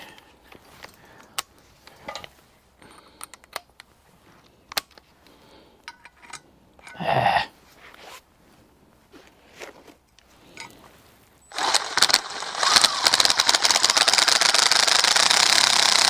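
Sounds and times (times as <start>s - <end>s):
metal parts and hand tools clicking: 5.9s - 7.0s, 11.5s - 16.0s
sharp ticks: 11.5s - 16.0s.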